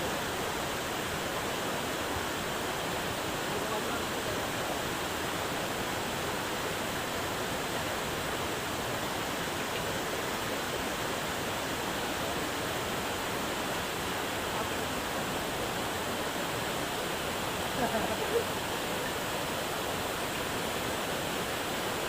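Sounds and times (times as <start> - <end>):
rainforest background hiss: 0.0 - 22.0.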